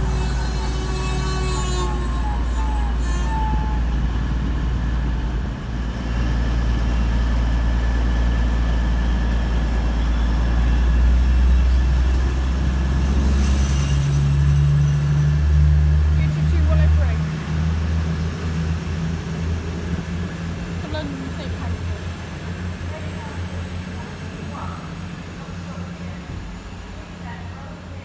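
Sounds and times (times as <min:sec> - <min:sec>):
high squeal: 0:00.0 - 0:04.9, 0:10.0 - 0:16.8
train rumbling: 0:00.0 - 0:28.0.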